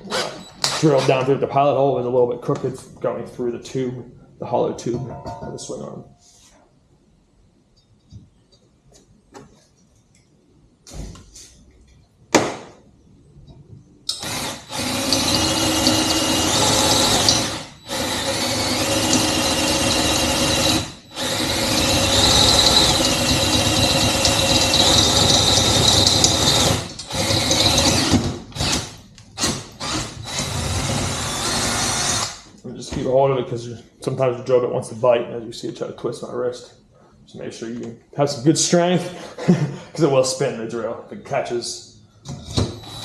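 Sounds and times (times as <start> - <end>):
power drill whining through metal: 14.1 - 32.4, 42.3 - 43.0.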